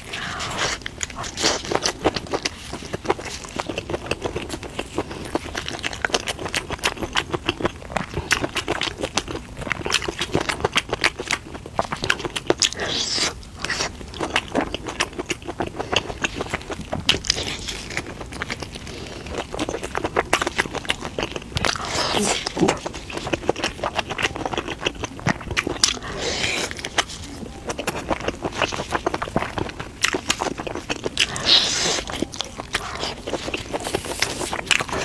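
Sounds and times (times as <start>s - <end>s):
person chewing: 0.0s - 35.0s.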